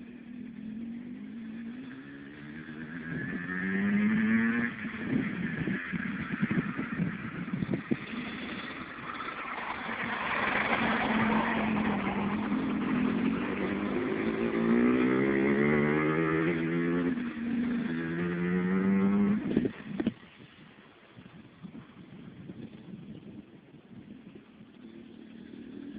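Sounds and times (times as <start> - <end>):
dirt bike engine revving: 0.2 - 20.1.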